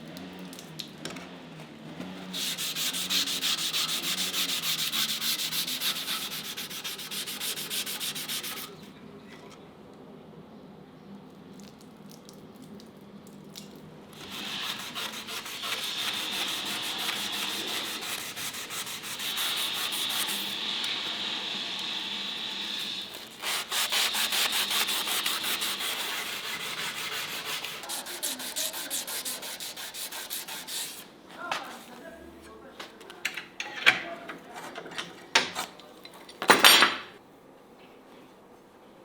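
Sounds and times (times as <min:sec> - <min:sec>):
sanding steel blade: 0:02.3 - 0:08.8, 0:14.2 - 0:31.1.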